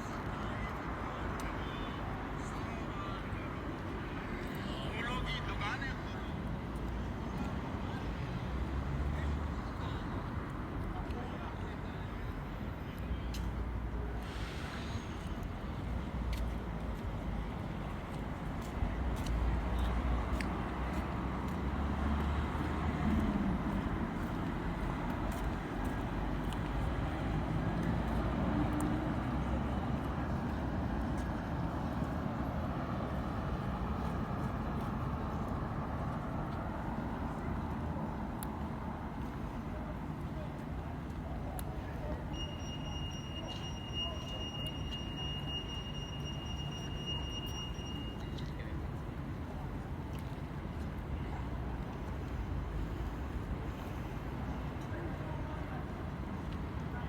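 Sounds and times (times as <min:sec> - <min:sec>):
traffic noise: 0:00.0 - 0:57.0
passing engines rumbling: 0:13.5 - 0:42.3.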